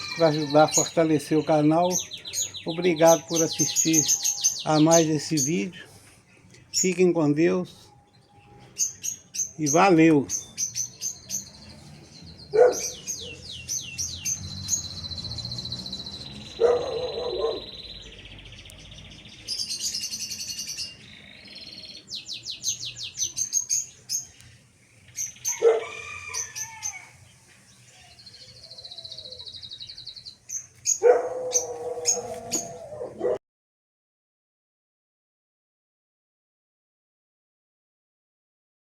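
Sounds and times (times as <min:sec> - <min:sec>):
harsh low bird calls: 0:00.0 - 0:24.2, 0:27.9 - 0:33.4
caged birds chirping and trilling: 0:00.0 - 0:33.4.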